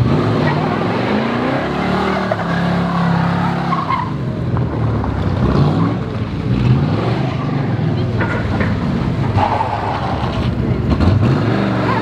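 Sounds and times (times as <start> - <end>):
car engine revving hard: 0.0 - 3.8, 10.9 - 12.0.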